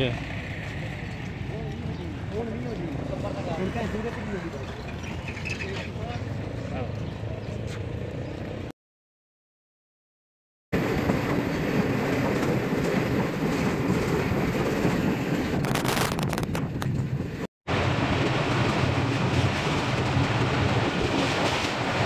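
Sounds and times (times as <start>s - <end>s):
wind on microphone: 10.8s - 17.4s
train wheels rumbling on rails: 10.8s - 22.0s.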